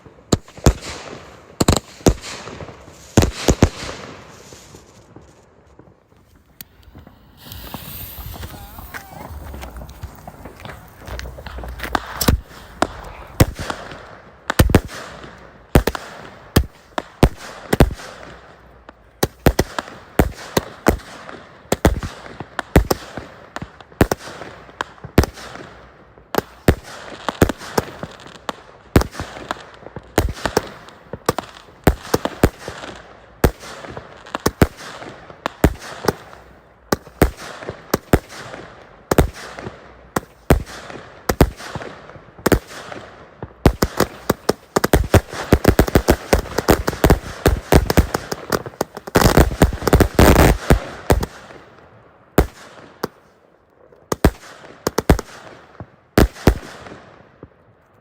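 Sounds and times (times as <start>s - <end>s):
fireworks bangs: 1.6s - 16.4s, 40.5s - 51.4s
fireworks hissing: 6.2s - 14.4s.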